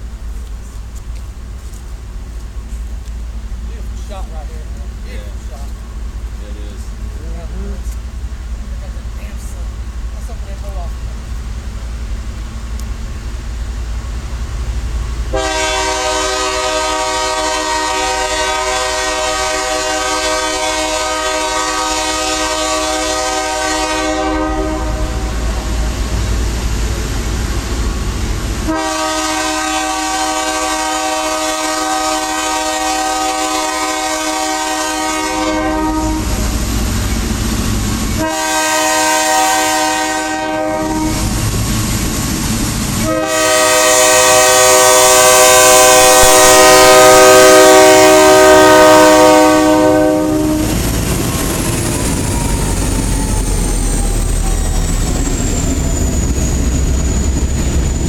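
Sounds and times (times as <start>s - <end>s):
train running over rails: 0.0s - 58.0s
locomotive chime horn blasts: 15.3s - 25.6s, 28.7s - 36.5s, 38.2s - 41.3s, 43.0s - 50.8s.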